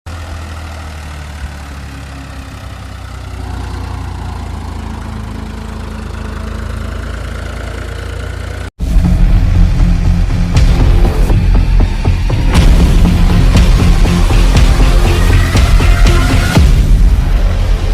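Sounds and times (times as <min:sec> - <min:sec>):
small engine humming: 0:00.1 - 0:08.7.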